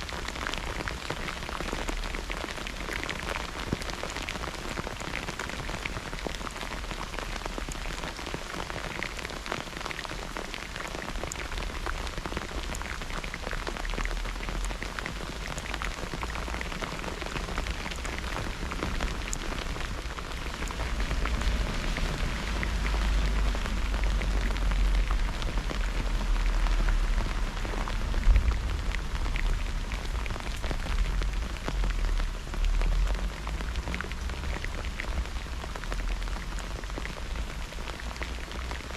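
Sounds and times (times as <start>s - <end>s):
raindrops ticking: 0.0s - 38.9s
steady rain falling: 0.0s - 38.9s
low rumble: 20.6s - 35.6s.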